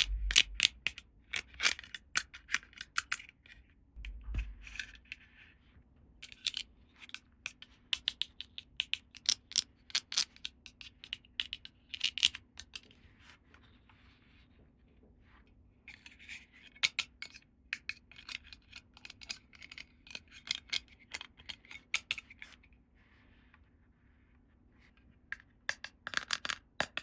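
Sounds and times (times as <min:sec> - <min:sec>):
plastic pieces clicking and tapping: 0:25.3 - 0:27.0.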